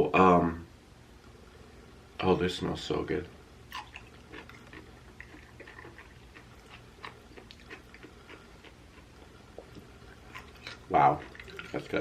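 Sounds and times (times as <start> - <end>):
person chewing food: 3.7 - 12.0.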